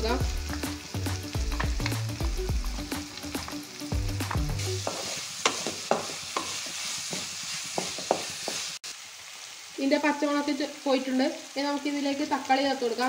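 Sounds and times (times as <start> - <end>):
onions sizzling in oil: 0.0 - 13.0
wooden spatula scraping a pan: 4.8 - 8.8.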